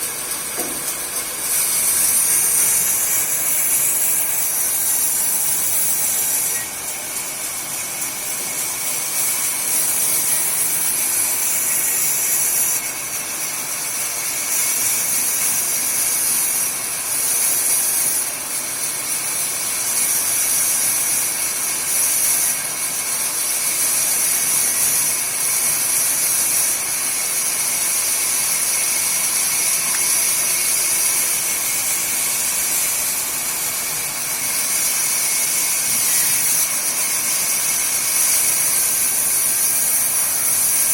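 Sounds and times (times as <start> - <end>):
sawmill saw cutting wood: 0.0 - 40.9.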